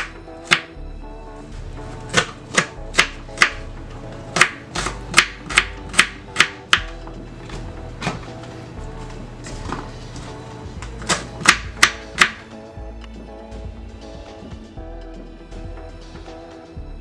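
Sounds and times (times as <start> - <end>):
background music: 0.0 - 17.0
knife chopping on cutting board: 4.4 - 6.9, 11.0 - 12.4.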